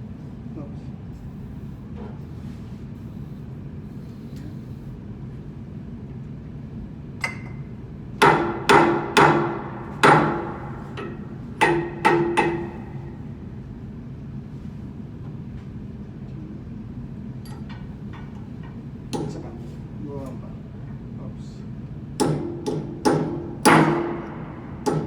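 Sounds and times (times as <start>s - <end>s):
low machinery hum: 0.0s - 25.0s
hammer striking metal: 8.2s - 13.3s, 19.1s - 19.4s, 22.2s - 25.0s.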